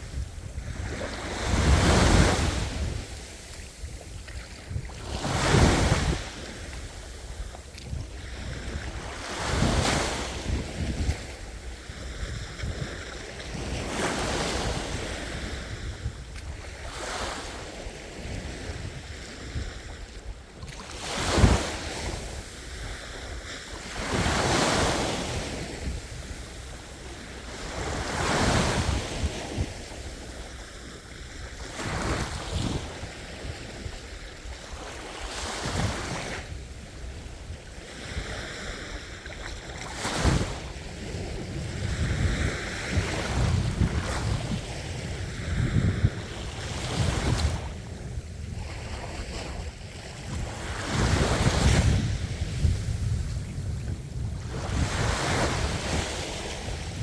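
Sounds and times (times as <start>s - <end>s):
sea waves breaking on shore: 0.0s - 57.0s
wind rumbling on microphone: 0.0s - 57.0s.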